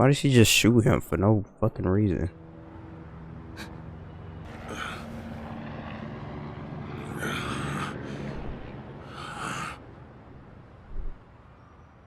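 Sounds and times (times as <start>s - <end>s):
low engine-like hum: 0.4s - 12.0s.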